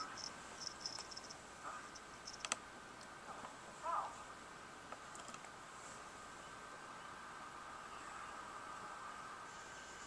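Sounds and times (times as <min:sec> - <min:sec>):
faint high hum: 0:00.0 - 0:10.0
steady low hiss: 0:00.0 - 0:10.0.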